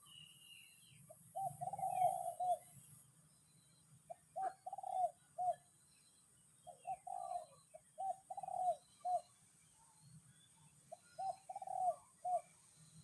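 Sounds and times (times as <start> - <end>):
small birds chirping: 0.0 - 13.0
dove cooing: 1.3 - 2.8, 4.1 - 5.6, 6.6 - 9.3, 10.9 - 12.6.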